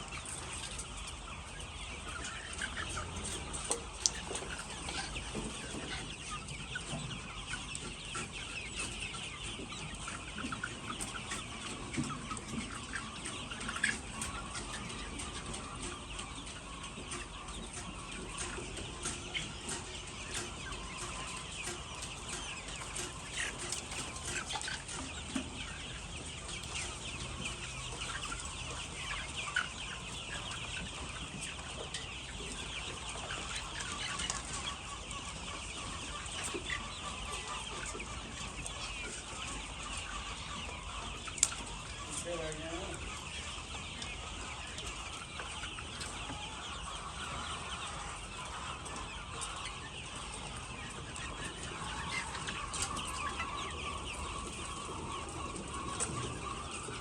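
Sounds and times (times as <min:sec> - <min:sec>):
hens clucking: 0:00.0 - 0:57.0.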